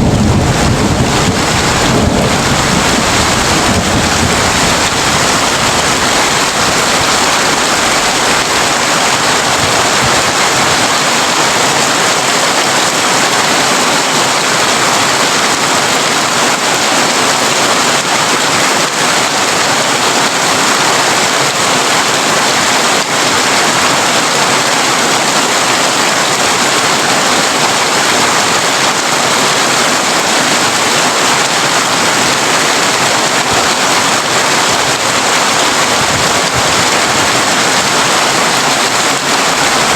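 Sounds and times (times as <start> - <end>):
low thunder rumble: 0.0 - 7.1
heavy rain on a tin roof: 0.0 - 39.9.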